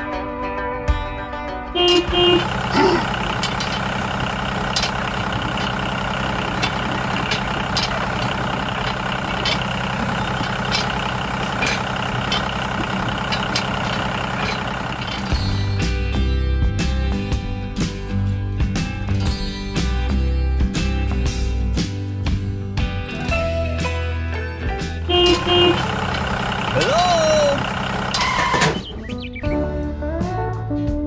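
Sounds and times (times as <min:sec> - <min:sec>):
engine idling: 0:01.8 - 0:16.3, 0:25.0 - 0:29.5.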